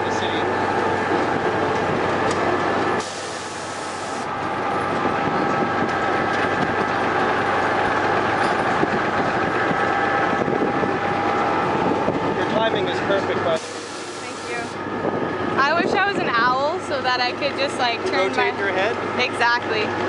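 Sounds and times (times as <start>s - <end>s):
rail rumble: 0.0s - 20.0s
wheels clickety-clack: 4.6s - 11.6s.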